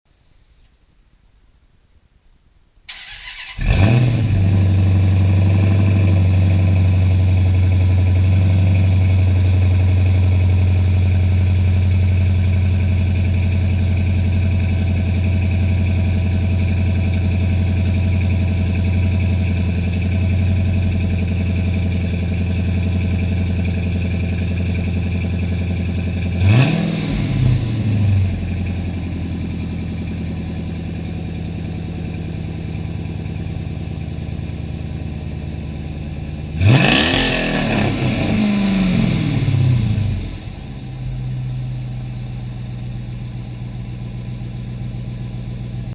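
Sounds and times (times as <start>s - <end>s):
engine revving: 2.9s - 9.2s, 23.4s - 29.2s, 36.5s - 40.7s
car engine starting and idling: 2.9s - 45.9s.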